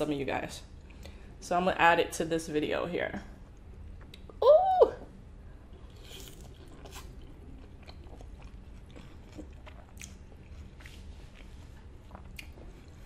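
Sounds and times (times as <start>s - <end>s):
person chewing: 5.7s - 13.0s.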